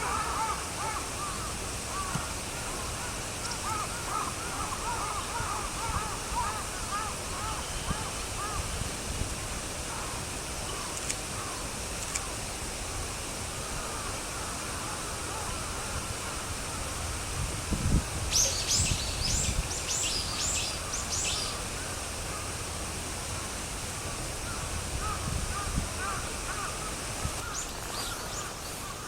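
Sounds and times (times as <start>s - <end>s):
songbird singing: 0.0s - 8.8s, 18.3s - 22.6s, 24.4s - 29.0s
faint outdoor background noise: 0.0s - 29.0s.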